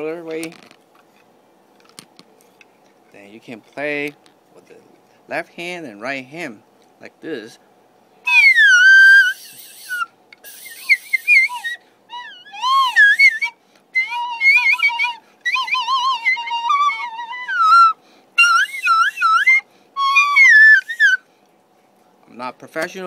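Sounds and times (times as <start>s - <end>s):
recorder warbling bird whistle: 8.3s - 21.2s.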